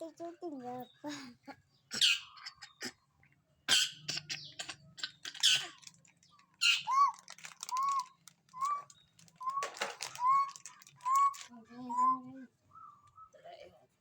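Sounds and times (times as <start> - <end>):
bird harsh squawks: 1.9 - 3.0, 3.7 - 5.9, 6.6 - 8.0
bird whistled notes: 6.6 - 13.4.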